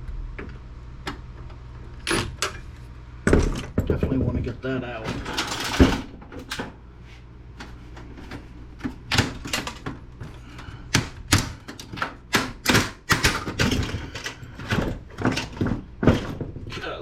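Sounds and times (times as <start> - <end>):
steady low hum: 0.0 - 17.0
computer parts clicking and clattering: 3.3 - 6.8, 7.6 - 17.0
sharp knocks: 10.8 - 16.8.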